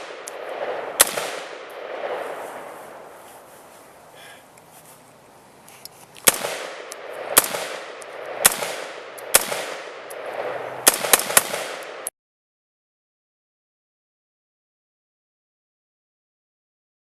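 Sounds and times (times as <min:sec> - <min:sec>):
gunshots with echo: 0:00.0 - 0:03.1, 0:06.3 - 0:12.1.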